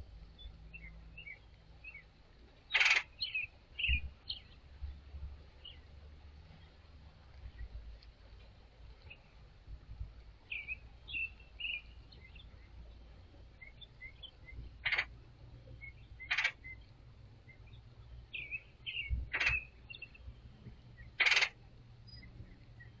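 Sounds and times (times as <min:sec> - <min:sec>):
woodpecker raspy calls: 0:02.7 - 0:04.5, 0:13.6 - 0:16.9, 0:17.5 - 0:20.2, 0:20.9 - 0:21.6.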